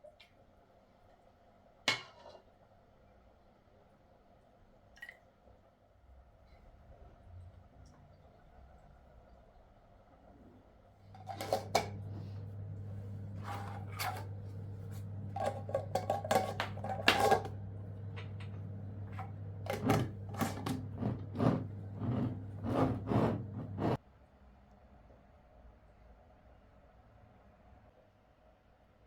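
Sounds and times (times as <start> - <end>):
steady low hum: 11.2 - 24.0
dishes and utensils clinking: 15.4 - 17.6.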